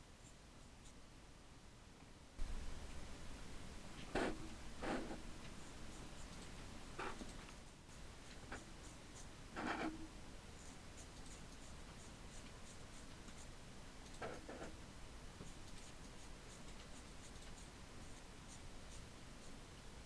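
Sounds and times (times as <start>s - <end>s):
paintbrush scratching lightly: 2.4s - 13.5s, 14.1s - 14.8s.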